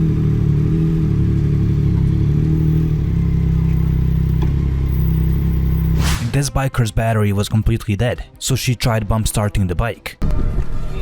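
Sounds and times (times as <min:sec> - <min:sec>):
dirt bike engine droning: 0:00.0 - 0:06.0.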